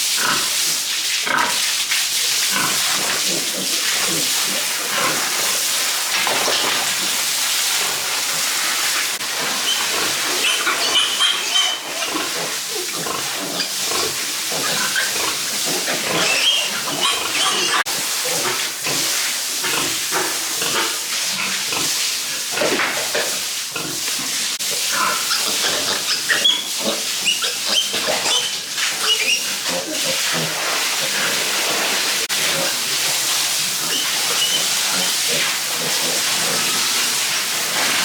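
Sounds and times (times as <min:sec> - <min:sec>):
pigs grunting and squealing: 0:02.5 - 0:05.4, 0:09.6 - 0:21.0, 0:23.7 - 0:31.5, 0:33.7 - 0:37.2
steady hiss: 0:17.8 - 0:38.0.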